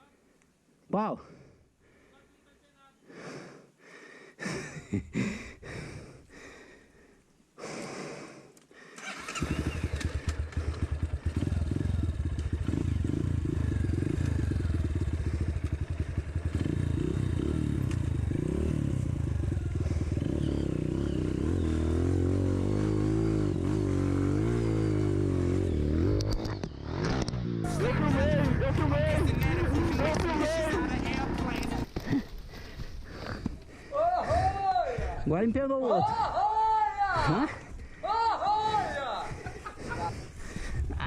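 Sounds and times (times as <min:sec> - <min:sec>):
motorcycle engine idling: 0:09.1 - 0:26.0, 0:27.7 - 0:34.6.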